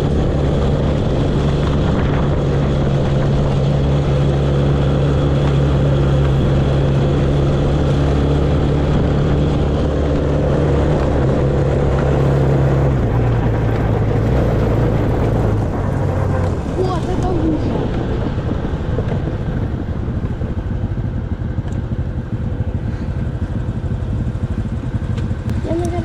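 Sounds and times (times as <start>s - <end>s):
quad bike engine running: 0.0s - 26.0s.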